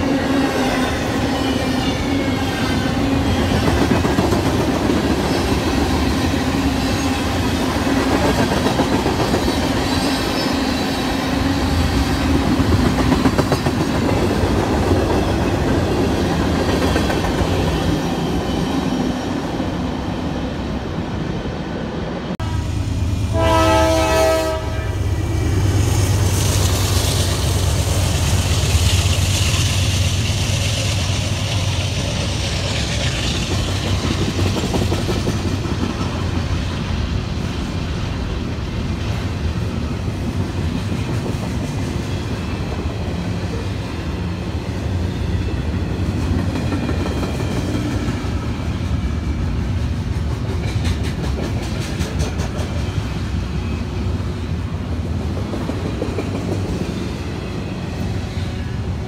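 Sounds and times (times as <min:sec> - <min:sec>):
locomotive horn blast: 0:22.4 - 0:25.2
train wheels clattering: 0:49.9 - 0:53.1.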